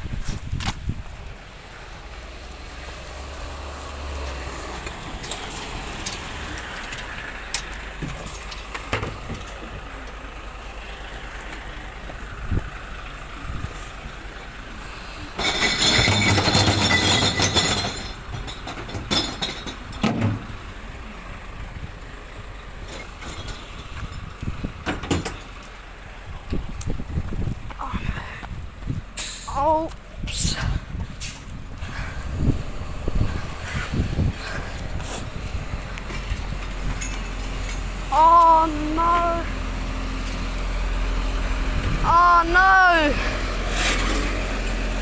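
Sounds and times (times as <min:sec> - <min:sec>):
truck engine running: 0:00.0 - 0:45.0
knocks and clatters: 0:15.4 - 0:20.6, 0:22.9 - 0:25.8.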